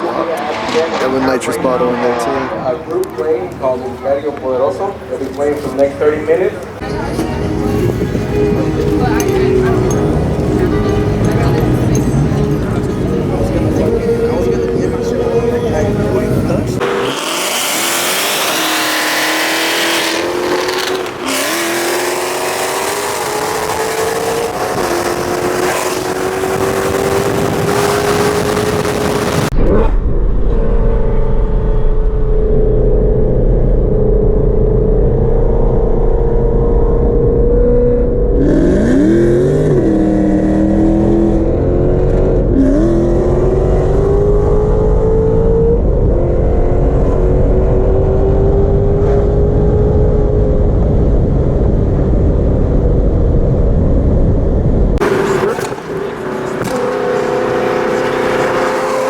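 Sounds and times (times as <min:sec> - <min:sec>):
car engine revving hard: 0:00.0 - 0:02.8, 0:07.6 - 0:29.8, 0:35.4 - 0:51.3, 0:55.0 - 0:59.0
loud rushing noise: 0:51.2 - 0:59.0.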